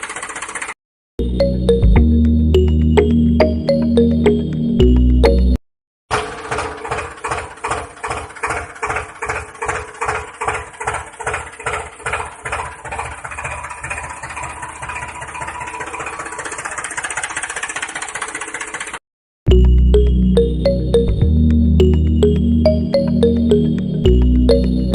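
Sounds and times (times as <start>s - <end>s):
small engine running: 0.0s - 0.8s, 6.1s - 19.0s.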